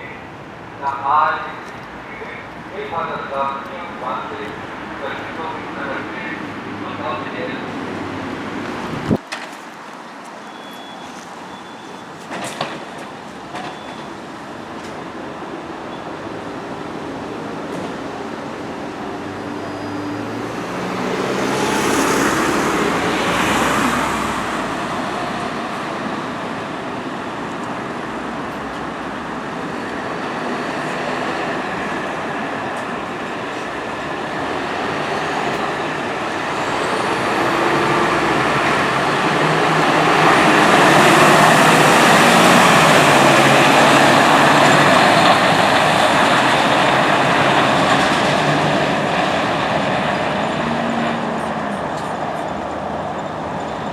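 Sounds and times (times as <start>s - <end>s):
fire truck engine pulling away: 32.7s - 53.9s.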